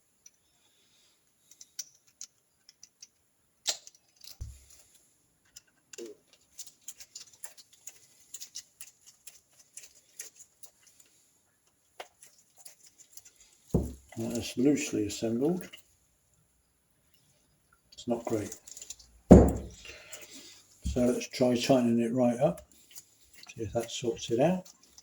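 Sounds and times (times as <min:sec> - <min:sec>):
small metal parts clicking: 0:01.2 - 0:11.1, 0:18.2 - 0:19.2
dull thud: 0:13.8 - 0:14.0, 0:19.3 - 0:19.8.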